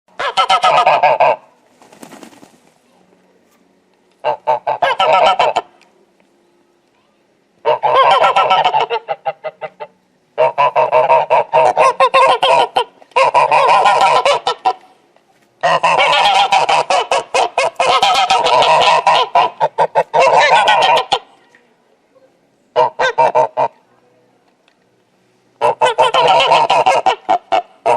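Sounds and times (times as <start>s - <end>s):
goose honking: 0.2s - 1.4s, 4.2s - 5.7s, 7.6s - 14.9s, 15.6s - 21.4s, 22.8s - 23.8s, 25.6s - 27.9s.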